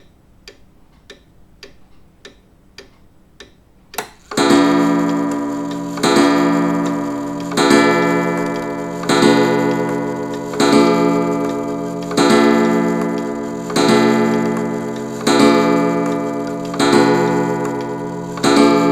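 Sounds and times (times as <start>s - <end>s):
clock ticking: 0.0s - 18.9s
clock striking: 4.0s - 18.9s.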